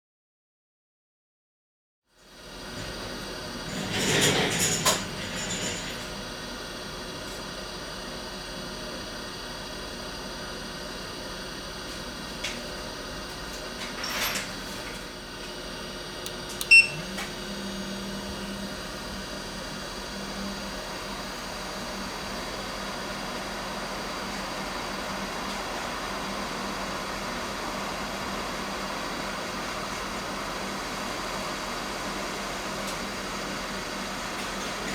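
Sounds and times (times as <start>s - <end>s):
fan humming: 15.9s - 34.9s
short electronic beep: 16.7s - 17.0s.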